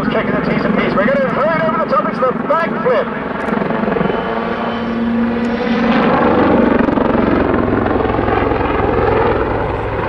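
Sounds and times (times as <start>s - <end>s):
helicopter rotor and turbine: 0.0s - 10.0s.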